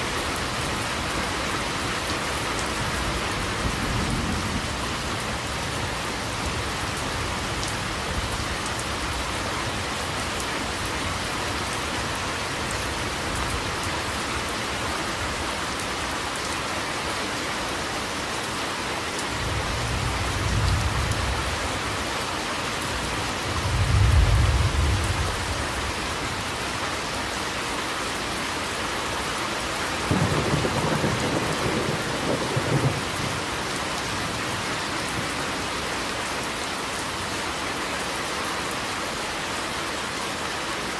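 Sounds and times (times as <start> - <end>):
heavy rain: 0.0 - 40.9
thunder rumbling: 30.0 - 35.4.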